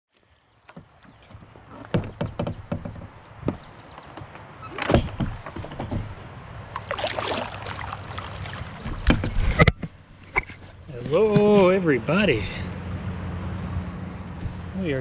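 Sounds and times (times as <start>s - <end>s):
paddle strokes splashing: 0.2s - 10.8s
knocks against kayak hull: 0.7s - 6.2s, 8.4s - 10.0s.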